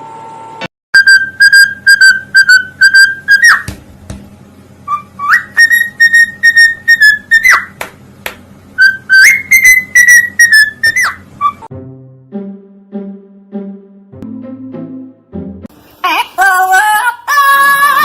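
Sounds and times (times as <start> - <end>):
parrot whistling a tune: 1.0 - 3.7, 4.8 - 7.8, 8.8 - 11.7.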